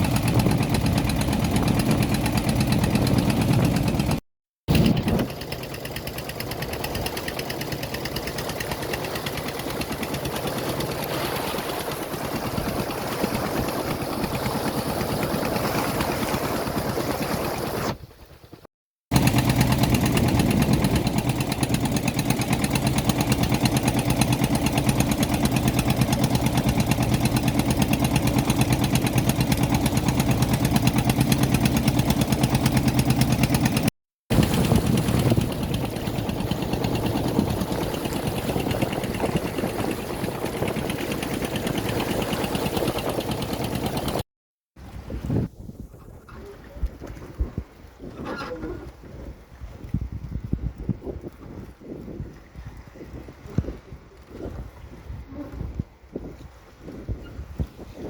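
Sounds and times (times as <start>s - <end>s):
small engine running: 0.0s - 44.2s.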